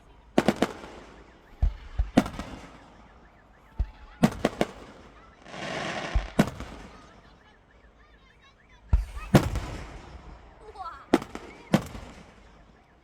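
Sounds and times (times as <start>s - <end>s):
firework booms: 0.0s - 7.2s, 8.9s - 12.6s
firework sharp cracks: 0.4s - 3.4s, 4.2s - 7.2s, 8.9s - 12.6s.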